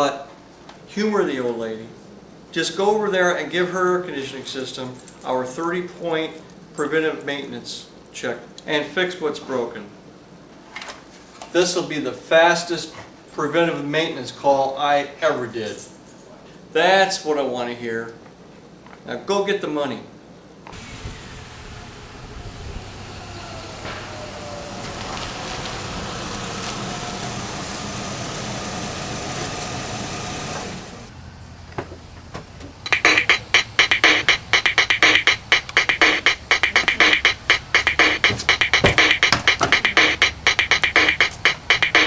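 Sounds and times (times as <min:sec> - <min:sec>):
car running with road noise: 0:20.7 - 0:32.8
upbeat electronic music: 0:32.9 - 0:42.0.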